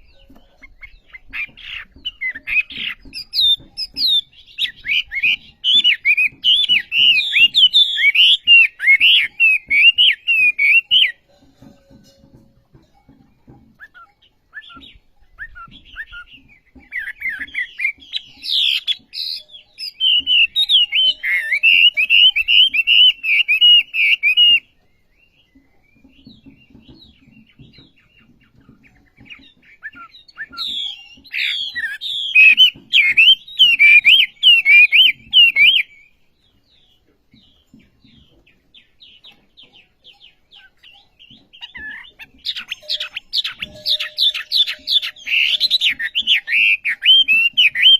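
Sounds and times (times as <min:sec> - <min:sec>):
rapid warbled birdsong: 0:00.0 - 0:47.9
songbird chirps: 0:00.0 - 0:47.9.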